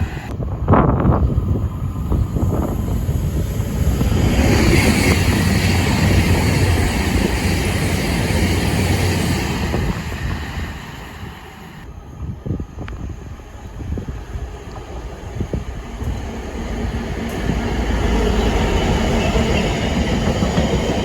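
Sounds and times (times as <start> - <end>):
train passing by: 0.0 - 21.0.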